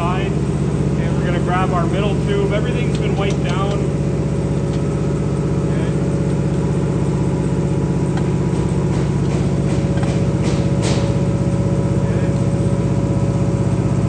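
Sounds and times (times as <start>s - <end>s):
low machine drone: 0.0s - 14.0s.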